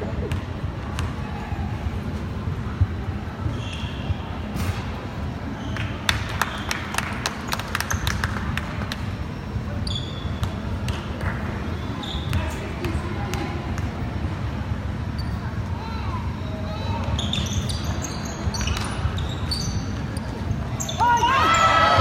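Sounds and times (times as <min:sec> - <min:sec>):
steady hall rumble: 0:00.0 - 0:09.8, 0:10.4 - 0:17.2
basketball bouncing on gym court: 0:00.2 - 0:01.4, 0:10.2 - 0:11.4
short high squeaks: 0:09.8 - 0:10.4, 0:16.8 - 0:21.6.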